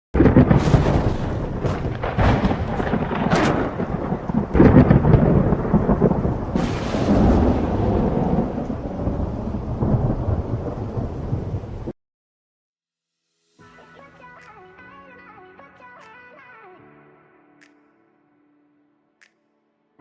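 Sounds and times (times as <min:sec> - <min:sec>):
rolling thunder with sharp cracks: 0:00.2 - 0:11.9
rain hiss: 0:01.3 - 0:11.8.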